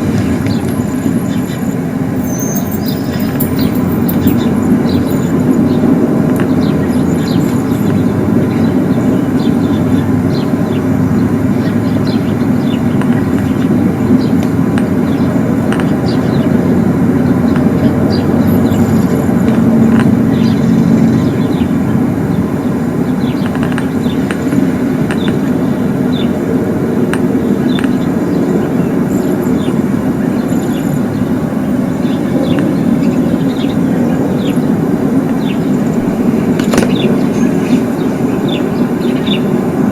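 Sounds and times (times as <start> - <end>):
birds chirping: 0.0 - 39.9
low droning rumble: 0.0 - 39.9.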